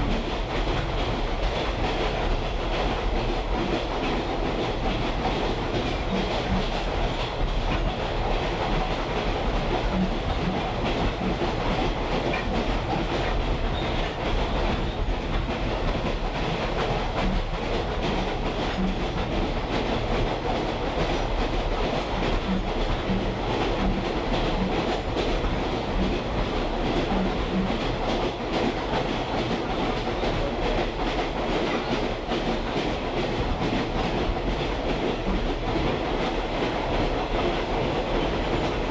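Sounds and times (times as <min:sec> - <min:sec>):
train wheels rumbling on track: 0:00.0 - 0:38.9.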